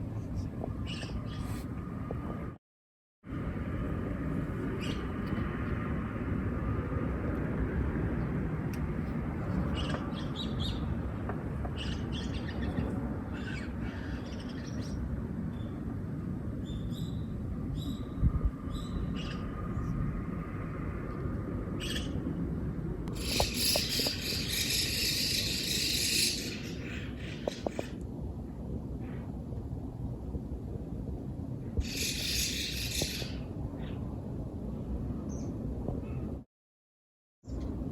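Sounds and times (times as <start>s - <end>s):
small birds chirping: 23.1s - 28.0s, 31.8s - 34.0s.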